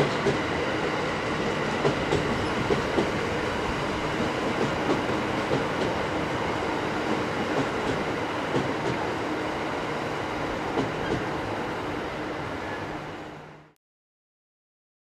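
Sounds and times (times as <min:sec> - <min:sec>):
train wheels clicking on rails: 0:00.0 - 0:09.2, 0:10.7 - 0:11.4.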